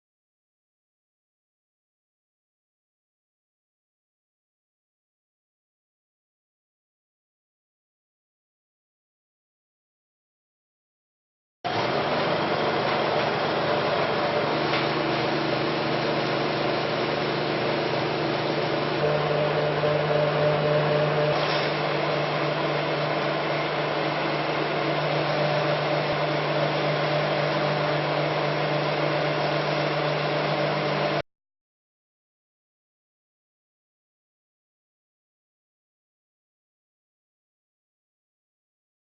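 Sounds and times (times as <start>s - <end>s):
pellet mill running: 11.7s - 31.2s.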